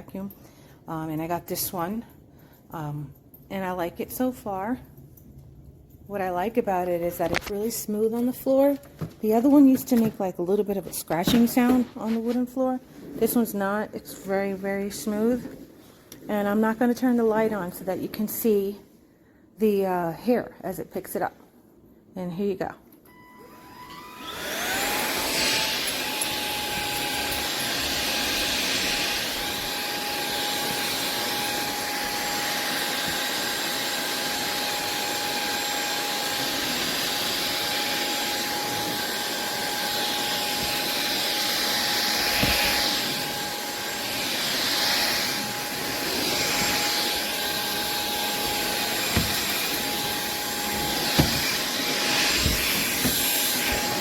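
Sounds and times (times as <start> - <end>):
vacuum cleaner motor whine: 23.1 - 54.0.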